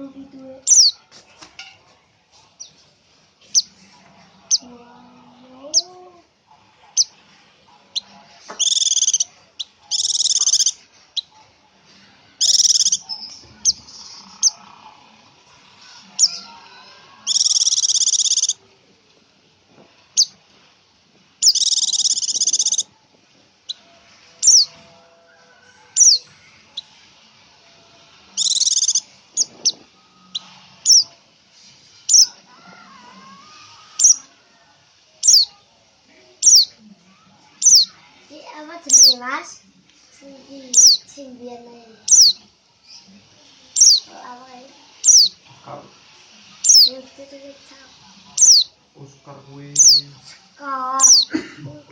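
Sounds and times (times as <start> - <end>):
songbird chirps: 0.0 - 51.4
buzzy bird trills: 0.6 - 1.0, 8.0 - 11.3, 12.4 - 14.7, 16.1 - 18.6, 21.4 - 22.9, 24.4 - 24.8, 26.0 - 26.2, 28.4 - 31.1, 32.1 - 32.4, 33.3 - 34.3, 35.2 - 35.5, 38.9 - 39.2, 42.0 - 43.0, 43.8 - 44.2, 45.0 - 45.4, 46.6 - 47.0, 48.4 - 48.7, 49.8 - 50.0, 51.0 - 51.3.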